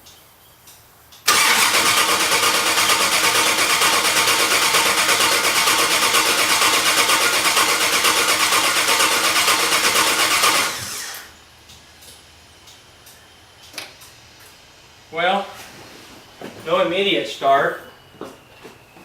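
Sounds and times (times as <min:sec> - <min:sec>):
engine cranking on starter motor: 0:01.2 - 0:11.4.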